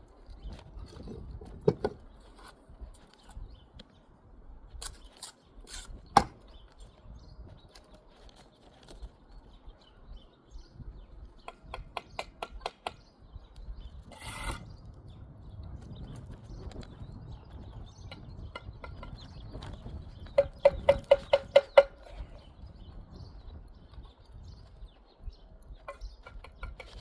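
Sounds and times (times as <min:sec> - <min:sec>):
trowel scraping mortar: 0:14.0 - 0:14.7
trowel tapping on brick: 0:20.4 - 0:22.1.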